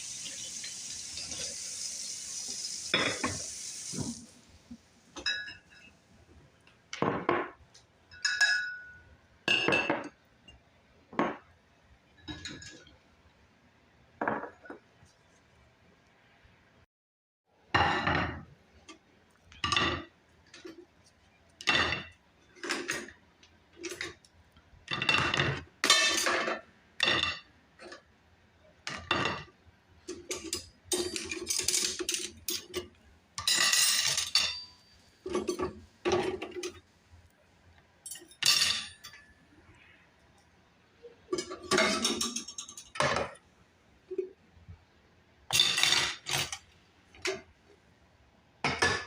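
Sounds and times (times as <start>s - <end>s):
dishes and cutlery clinking: 2.9s - 3.4s, 5.2s - 6.0s, 7.0s - 10.6s, 12.2s - 12.9s, 21.6s - 23.2s, 23.8s - 24.2s, 24.9s - 28.0s, 28.9s - 36.8s, 38.0s - 39.4s, 41.3s - 43.4s, 45.5s - 47.5s.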